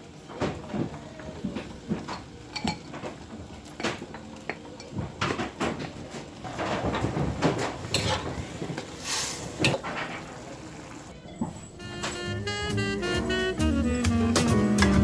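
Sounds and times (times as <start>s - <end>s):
dishes and utensils clinking: 1.9s - 5.8s, 6.5s - 15.0s.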